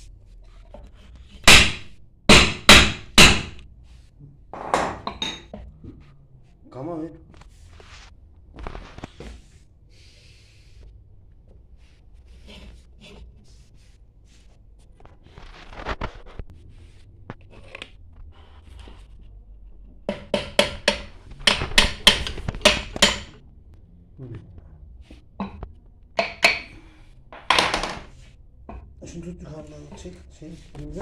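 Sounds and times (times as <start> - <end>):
sharp metal knocks: 1.4 - 3.6, 20.1 - 23.4.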